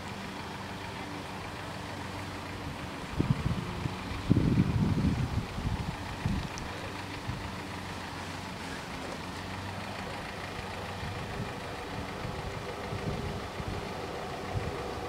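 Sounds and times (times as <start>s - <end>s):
car engine idling: 0.0s - 15.0s
wind buffeting the microphone: 3.1s - 7.5s, 11.0s - 15.0s.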